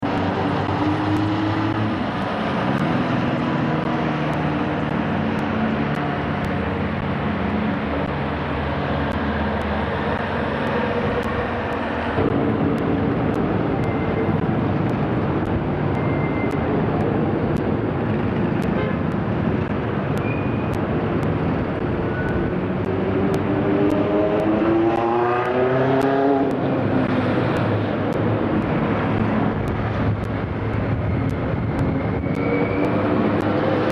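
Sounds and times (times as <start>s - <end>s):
road traffic engines: 0.0s - 33.9s
engine revving up: 22.8s - 27.8s.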